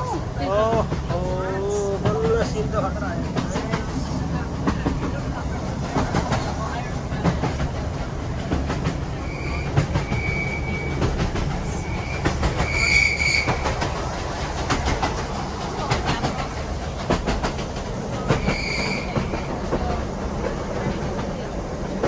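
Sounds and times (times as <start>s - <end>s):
train rumbling along track: 0.0s - 22.0s
wheels clicking over rail joints: 0.5s - 22.0s
high-pitched wheel squeals: 9.2s - 13.7s, 18.4s - 19.5s.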